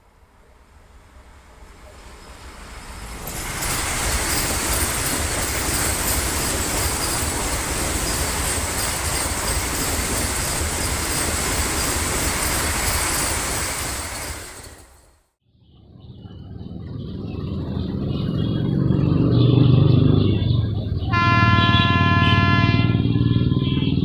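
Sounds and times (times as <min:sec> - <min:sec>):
train wheels rattling on rails: 0:00.8 - 0:15.2.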